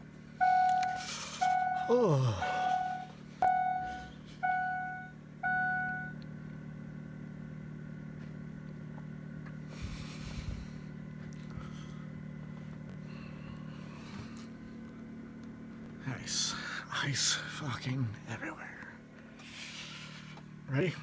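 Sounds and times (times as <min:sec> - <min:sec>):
low hum: 0:00.0 - 0:21.0
dashboard warning chime: 0:00.4 - 0:06.2.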